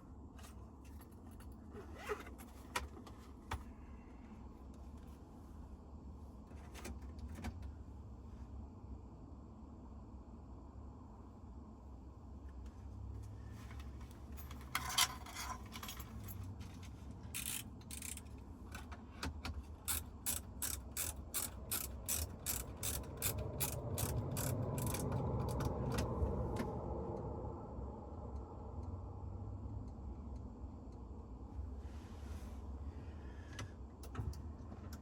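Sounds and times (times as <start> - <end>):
ratchet clicking: 17.4 - 18.4, 19.8 - 25.6
low hum: 21.6 - 34.0.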